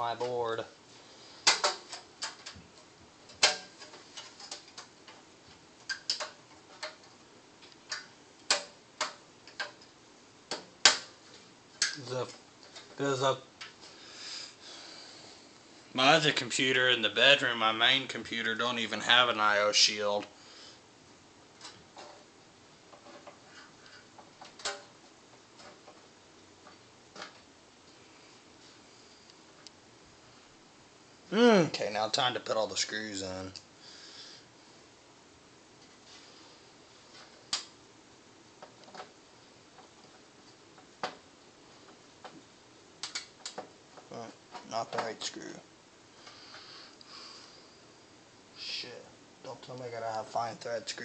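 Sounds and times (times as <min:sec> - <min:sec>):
metal snaps: 0:01.4 - 0:02.6, 0:05.8 - 0:09.9, 0:11.8 - 0:12.0, 0:43.0 - 0:43.6.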